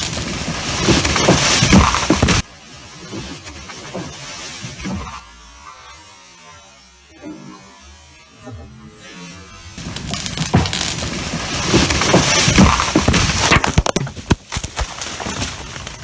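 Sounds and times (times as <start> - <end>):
tree cracking and crashing: 0.0 - 4.6, 9.8 - 16.0
rush of limbs through canopy: 0.0 - 4.8, 9.8 - 16.0.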